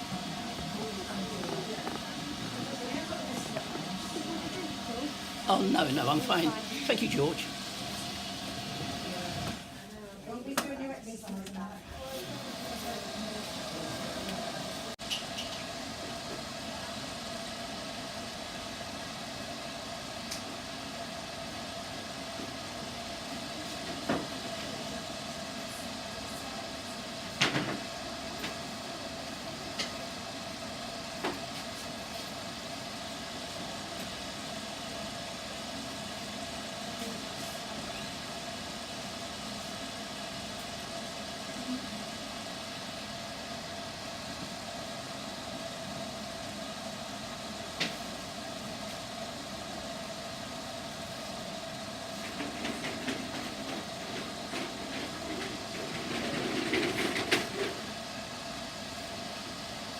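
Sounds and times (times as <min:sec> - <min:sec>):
hood hairdryer blowing: 0:00.0 - 0:09.8.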